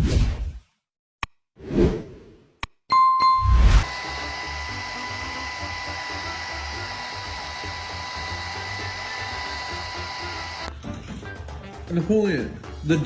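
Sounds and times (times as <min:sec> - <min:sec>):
electric motor whirring: 0:03.8 - 0:10.7
thin steady whine: 0:03.8 - 0:10.7.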